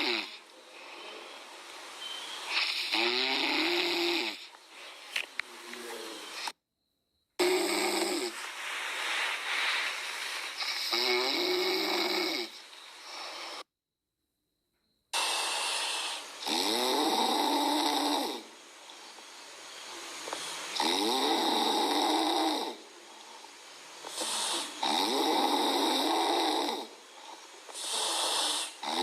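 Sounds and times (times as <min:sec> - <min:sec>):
puppy snoring: 0:00.0 - 0:01.2, 0:02.3 - 0:04.6, 0:07.4 - 0:08.4, 0:10.5 - 0:13.7, 0:15.1 - 0:18.5, 0:20.7 - 0:23.3, 0:24.0 - 0:29.0.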